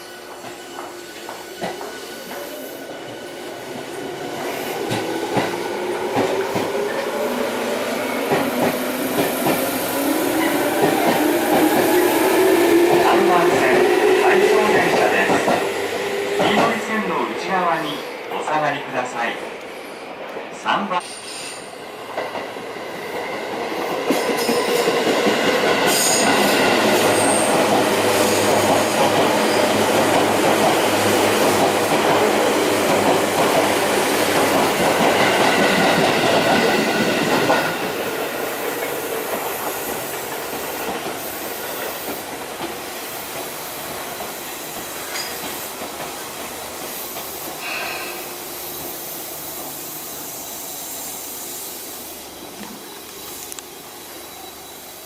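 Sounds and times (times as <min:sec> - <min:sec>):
train wheels squealing: 0:00.0 - 0:03.6, 0:44.6 - 0:45.7, 0:47.0 - 0:55.0.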